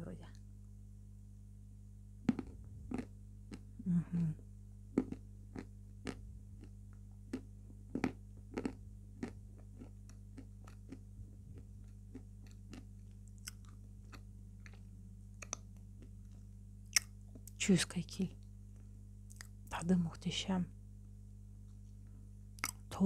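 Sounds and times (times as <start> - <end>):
steady low hum: 0.0 - 23.0
person chewing crunchy clay: 2.2 - 3.8, 4.9 - 17.5, 22.6 - 22.9
mouth clicks: 15.4 - 15.7.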